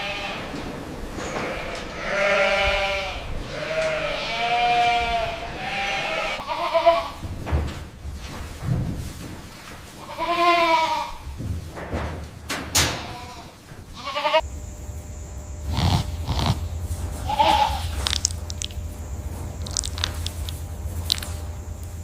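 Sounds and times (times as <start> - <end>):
goats bleating: 1.4 - 7.2, 10.0 - 11.2, 13.0 - 14.5, 15.7 - 21.8
knocks and rustling: 7.2 - 10.0, 11.2 - 14.0.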